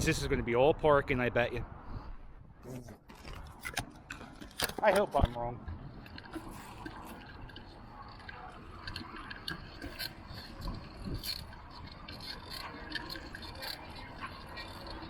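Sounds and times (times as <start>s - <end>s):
low rumble of wind and road: 0.0s - 15.0s
bicycle ticks and rattles: 3.2s - 15.0s.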